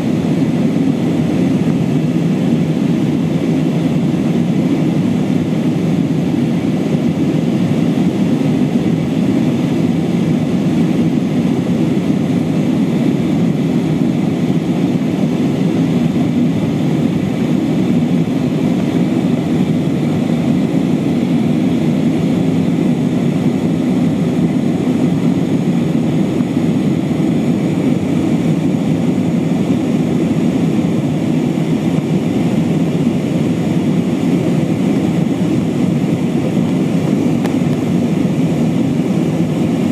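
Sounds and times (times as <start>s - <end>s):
airliner engine and airflow rumble: 0.0s - 39.9s.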